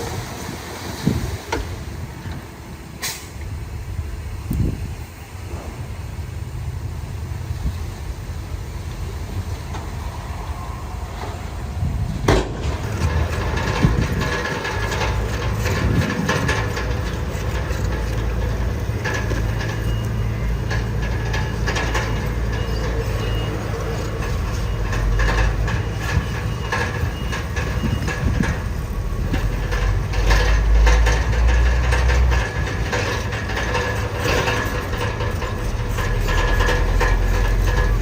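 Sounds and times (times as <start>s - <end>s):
bulldozer engine running: 0.0s - 38.0s
metallic clanking and rattling: 11.2s - 38.0s.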